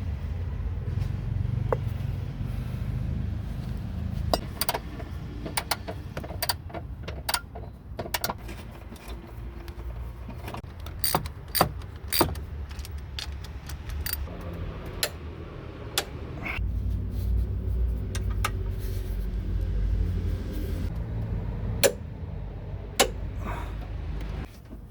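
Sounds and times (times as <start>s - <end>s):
metal tools clinking: 10.6s - 14.3s
low rumble: 13.6s - 24.5s.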